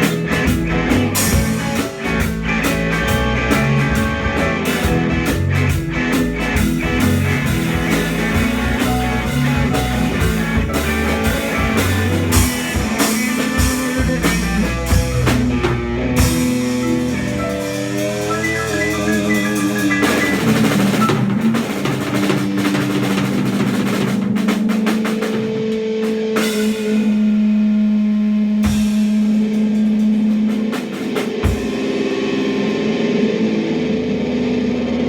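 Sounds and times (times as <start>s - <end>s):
bass line: 0.0s - 24.8s
drum kit: 0.0s - 35.0s
guitar: 0.0s - 35.0s.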